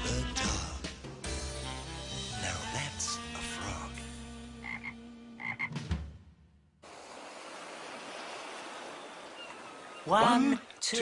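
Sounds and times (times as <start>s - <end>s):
cartoon theme music: 0.0s - 5.9s
croak-like calls: 4.6s - 5.8s
surf noise: 6.8s - 11.0s.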